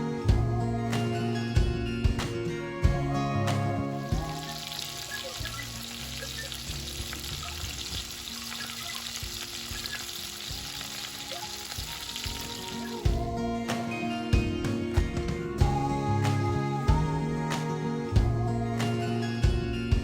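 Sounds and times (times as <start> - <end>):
quiet background music: 0.0 - 20.0
food sizzling in hot oil: 4.1 - 13.2.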